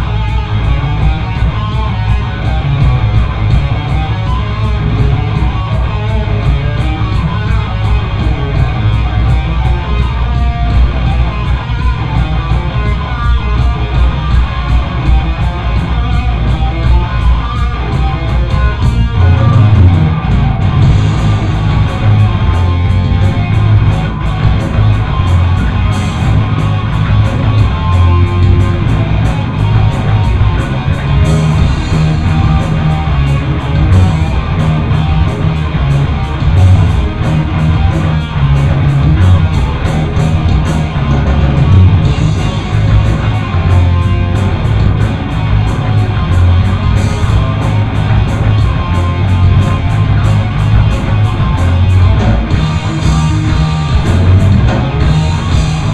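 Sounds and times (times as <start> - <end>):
live rock band playing: 0.0 - 55.9.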